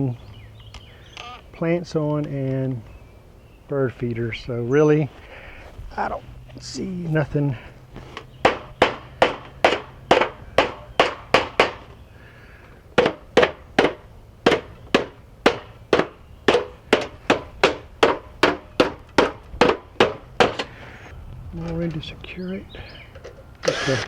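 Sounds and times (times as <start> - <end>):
hammer blows: 8.4 - 11.9.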